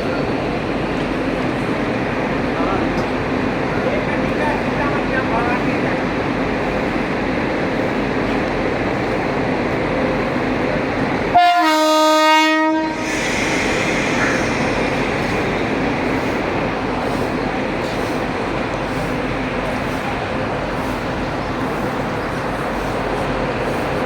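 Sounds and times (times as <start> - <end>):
train rumble: 0.0 - 24.0
locomotive horn blast: 11.3 - 13.0.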